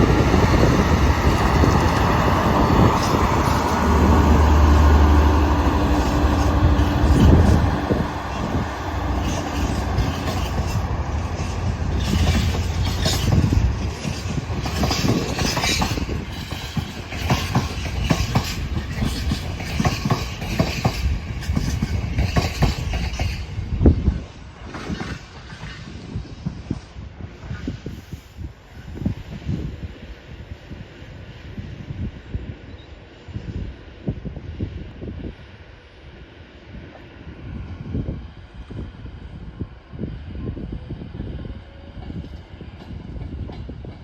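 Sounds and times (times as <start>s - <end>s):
train wheels clattering over rail joints: 0.0s - 23.5s, 24.6s - 26.2s
train low drone: 0.0s - 44.0s.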